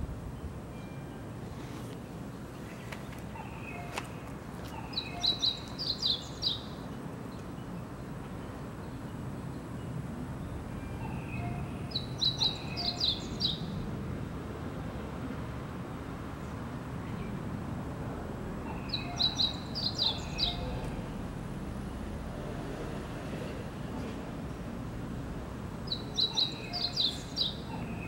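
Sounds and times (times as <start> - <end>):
bird chirping: 2.5 - 7.8, 10.4 - 13.8, 18.6 - 21.0, 25.9 - 28.0.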